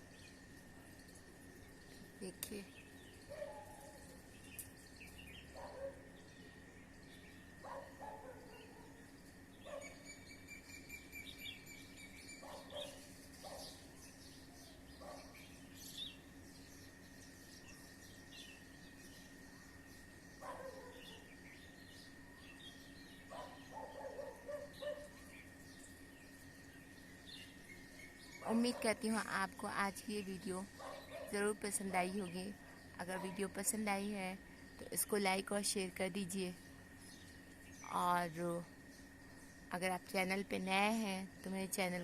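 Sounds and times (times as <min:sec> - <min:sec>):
birds chirping and calling: 0:09.6 - 0:19.2.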